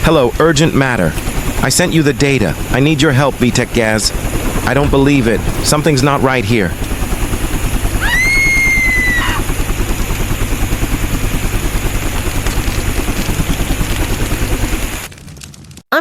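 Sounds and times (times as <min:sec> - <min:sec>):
helicopter rotor beating: 0:00.0 - 0:15.8
high whistling tone: 0:04.6 - 0:09.4.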